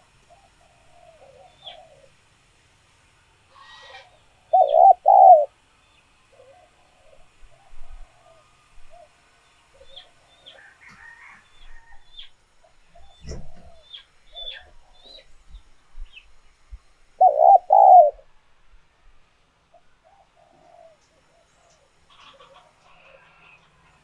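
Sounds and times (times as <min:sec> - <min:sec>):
doves cooing: 0:00.0 - 0:02.3, 0:03.6 - 0:05.6, 0:06.3 - 0:15.7, 0:17.2 - 0:18.3, 0:19.7 - 0:23.9
small birds chirping: 0:04.1 - 0:07.9, 0:08.9 - 0:10.7, 0:11.5 - 0:18.2.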